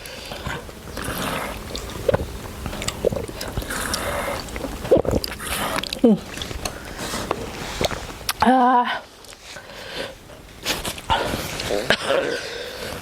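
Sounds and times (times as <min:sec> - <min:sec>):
slurping noodle soup: 0:00.0 - 0:08.4
mouth clicks: 0:00.0 - 0:08.5.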